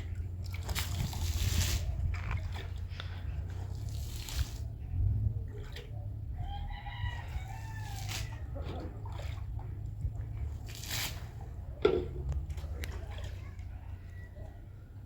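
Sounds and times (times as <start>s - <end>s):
steady low rumble: 0.0s - 15.0s
rooster crowing: 6.4s - 8.5s, 13.7s - 14.9s.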